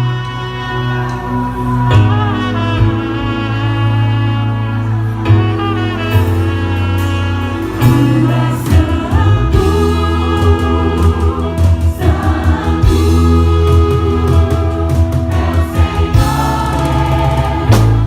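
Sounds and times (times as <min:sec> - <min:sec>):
gospel choir singing with band: 0:00.0 - 0:18.0
heavy bass: 0:00.0 - 0:18.0
drum hits: 0:16.2 - 0:18.0.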